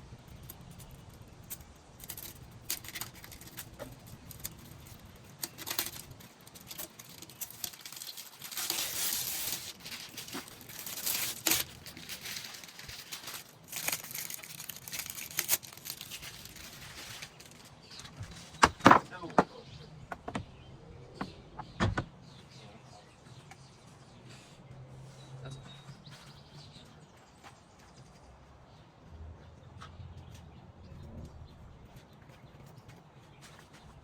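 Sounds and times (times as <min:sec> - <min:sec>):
rustling: 0:00.0 - 0:19.3
hand tools clicking and clanking: 0:00.3 - 0:19.4.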